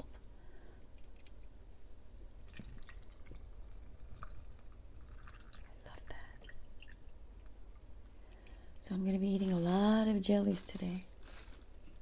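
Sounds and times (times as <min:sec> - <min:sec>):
liquid dripping and trickling: 0:02.3 - 0:08.0.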